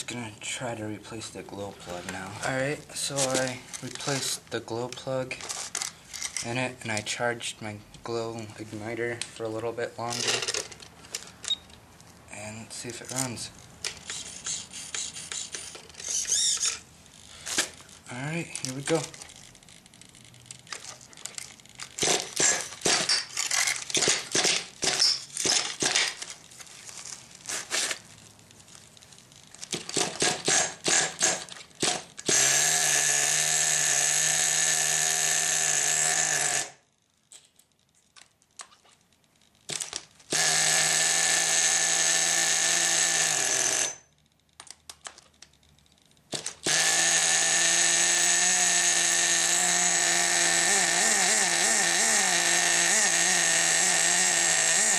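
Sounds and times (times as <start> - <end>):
nitro engine buzzing: 46.7 - 54.9.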